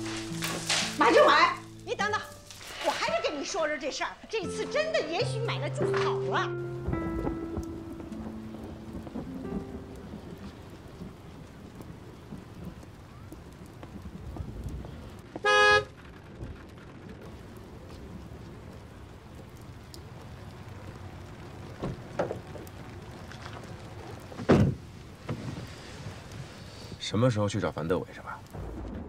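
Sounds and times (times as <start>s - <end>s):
street traffic: 0.0s - 27.0s
steady rain: 0.0s - 29.0s
car horn toot: 15.4s - 15.9s.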